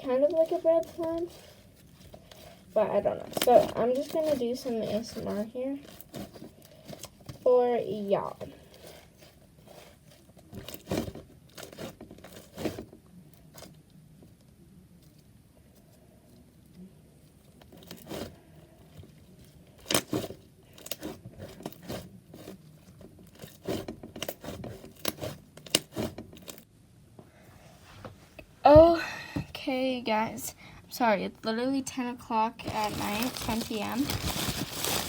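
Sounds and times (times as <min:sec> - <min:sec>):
slime crackling and popping: 0:32.6 - 0:35.0.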